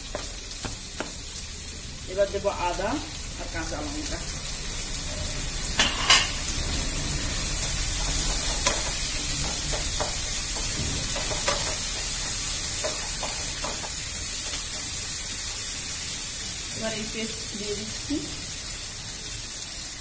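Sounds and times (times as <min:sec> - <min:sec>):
food sizzling in oil: 0:00.0 - 0:20.0
spatula scraping pan: 0:07.2 - 0:14.9.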